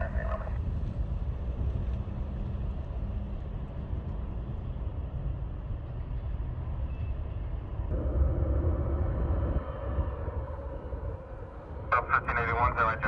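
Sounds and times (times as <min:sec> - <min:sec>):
faint steady hum: 0:00.0 - 0:13.0
distant jet engines rumbling: 0:07.5 - 0:13.0.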